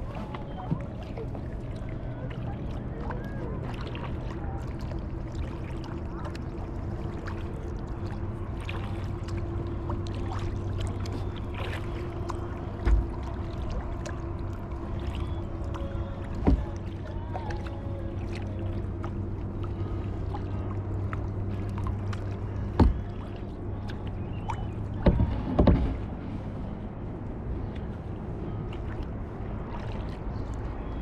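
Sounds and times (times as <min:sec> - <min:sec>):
paddle splashing in water: 0:00.0 - 0:26.8, 0:27.5 - 0:31.0
constant low hum: 0:00.0 - 0:31.0
dull thumps: 0:22.7 - 0:23.2, 0:25.0 - 0:26.0.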